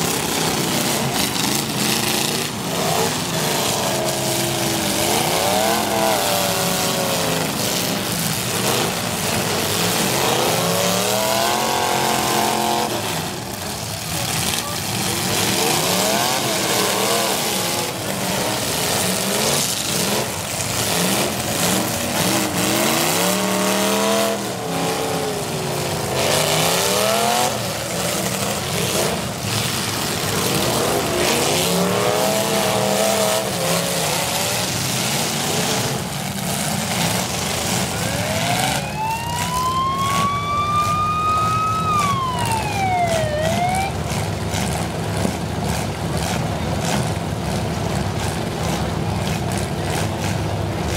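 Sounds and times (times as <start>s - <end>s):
car engines revving: 0.0s - 50.9s
engine high rising whine: 37.2s - 44.8s.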